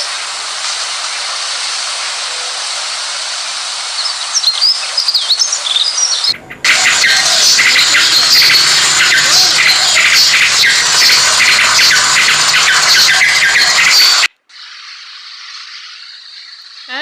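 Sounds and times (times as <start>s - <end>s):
flock of birds chirping: 4.0s - 14.3s.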